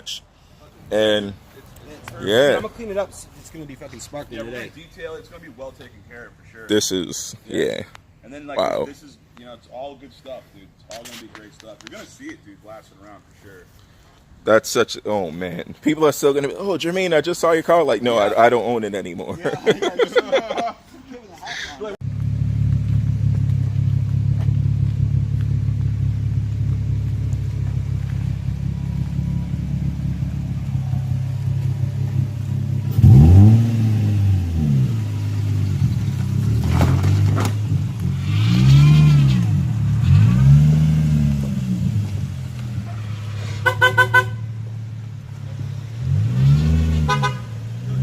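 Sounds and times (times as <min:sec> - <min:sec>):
car engine idling: 0:22.0 - 0:46.1
engine revving: 0:22.0 - 0:48.0
car horn toots: 0:43.6 - 0:44.7, 0:47.0 - 0:47.6.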